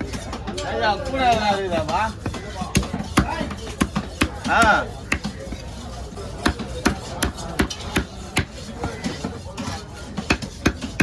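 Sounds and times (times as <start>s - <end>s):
knife chopping fish on block: 1.8s - 11.0s.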